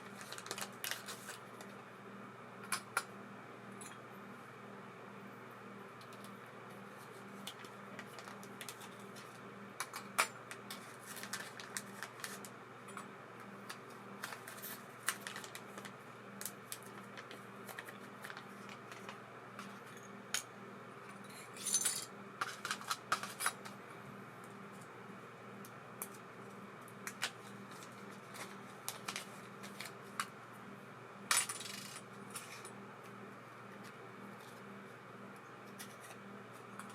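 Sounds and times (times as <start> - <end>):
metal parts and tools clinking: 21.5 - 23.7.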